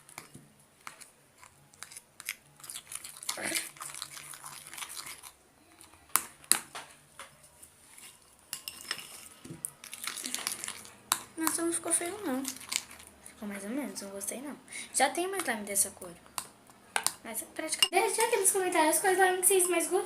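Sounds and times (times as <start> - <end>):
slime squishing and crackling: 0.0 - 6.6, 9.8 - 13.3.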